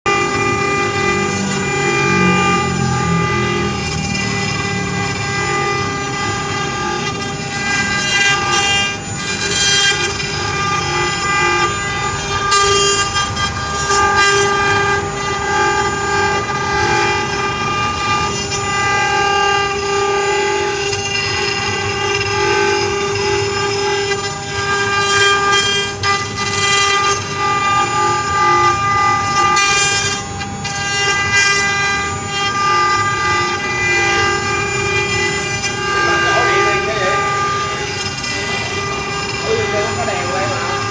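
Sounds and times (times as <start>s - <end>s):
router spindle whining: 0.0s - 40.9s.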